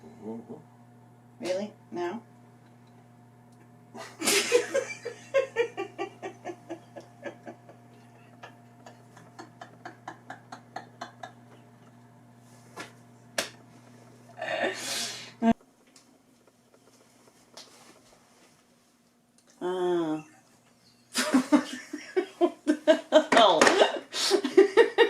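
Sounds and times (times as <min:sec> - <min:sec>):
low hum: 0:00.0 - 0:21.6
person laughing: 0:04.0 - 0:11.8, 0:21.1 - 0:25.0.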